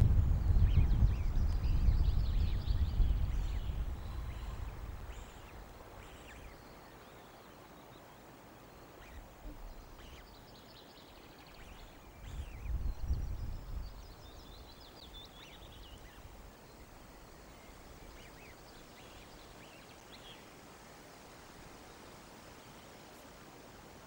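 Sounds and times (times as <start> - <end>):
wind rumble on microphone: 0.0 - 6.5, 11.7 - 16.9
bird chirps and trills: 0.4 - 8.0, 8.9 - 20.4
outdoor hiss: 2.9 - 24.0.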